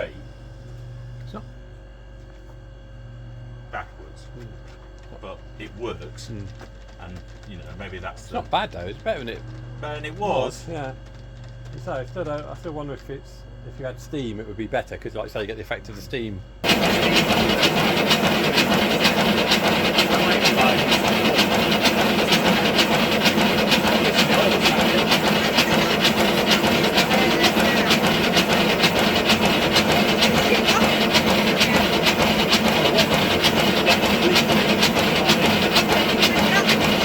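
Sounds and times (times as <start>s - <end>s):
steam locomotive exhaust beats: 16.6s - 37.0s.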